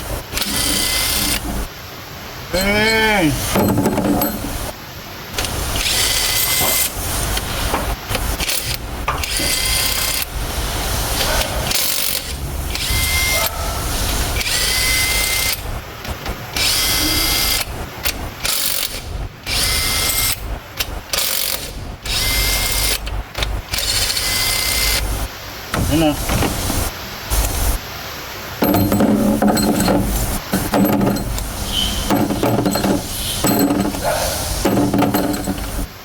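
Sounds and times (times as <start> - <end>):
power tool bursts: 28.6 - 35.9.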